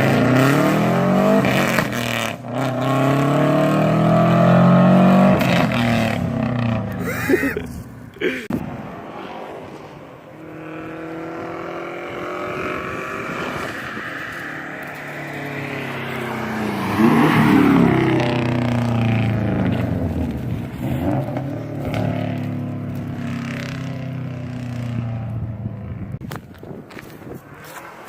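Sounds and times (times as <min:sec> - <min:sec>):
car engine driving past: 0:08.6 - 0:26.2.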